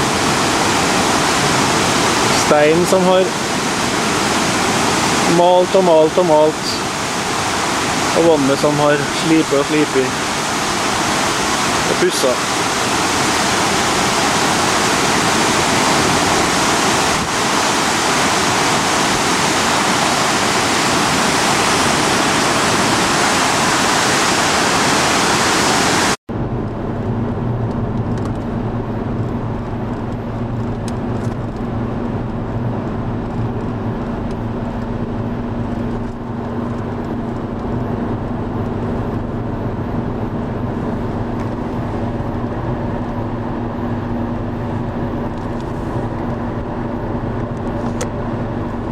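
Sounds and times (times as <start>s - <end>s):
river water rushing: 0.0s - 26.2s
motor hum with low drone: 26.3s - 48.9s.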